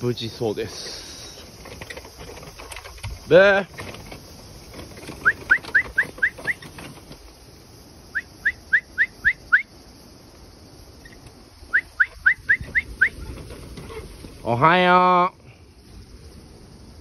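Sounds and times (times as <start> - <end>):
bird whistling rising notes: 8.1 - 9.7, 11.7 - 13.2.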